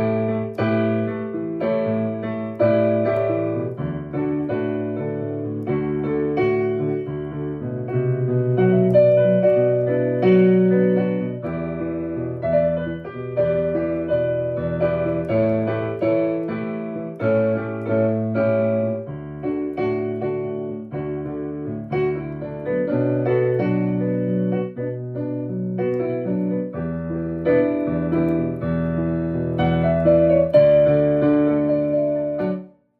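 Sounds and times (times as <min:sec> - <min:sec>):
solo piano: 0:00.0 - 0:32.9.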